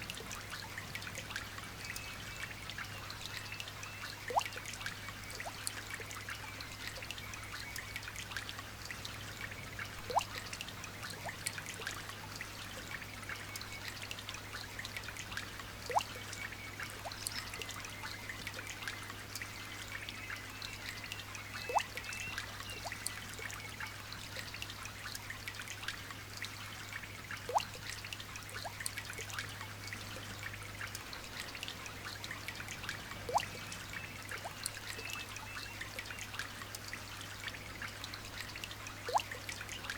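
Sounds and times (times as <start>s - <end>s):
loud single water drip: 27.5s - 27.9s, 33.3s - 33.7s.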